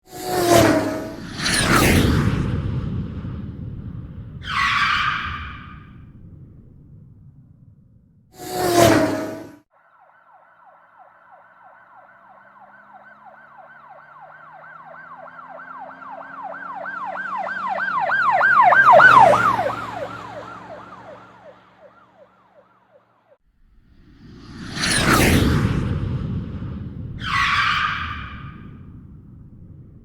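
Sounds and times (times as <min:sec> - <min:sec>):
police siren yelping: 0:09.8 - 0:23.1.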